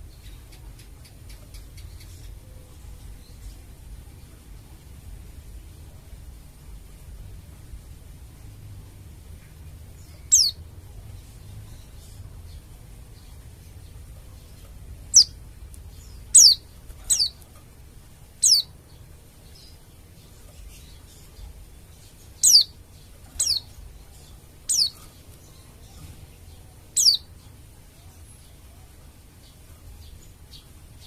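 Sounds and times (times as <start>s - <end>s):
faint low hum: 0.0s - 31.0s
bird sharp high calls: 10.2s - 10.6s, 16.3s - 17.4s, 18.4s - 18.7s, 22.4s - 22.7s, 23.4s - 23.7s, 24.7s - 25.0s, 27.0s - 27.2s.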